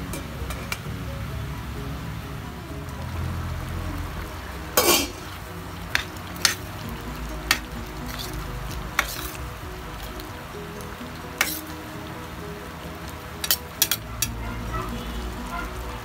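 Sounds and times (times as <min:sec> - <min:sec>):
metal spatula scraping a pot: 0:07.5 - 0:09.5, 0:11.4 - 0:11.8, 0:13.4 - 0:14.4.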